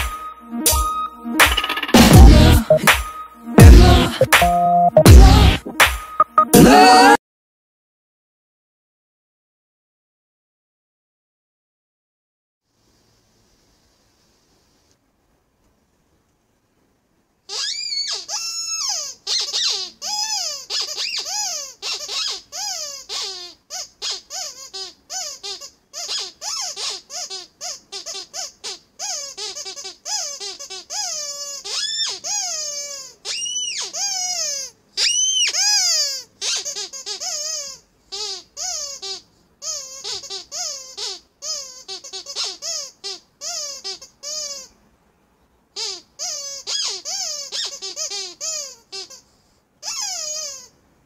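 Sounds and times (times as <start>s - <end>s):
squeaky rubber toy squeaking: 0.0s - 5.6s, 17.5s - 44.8s, 45.8s - 50.8s.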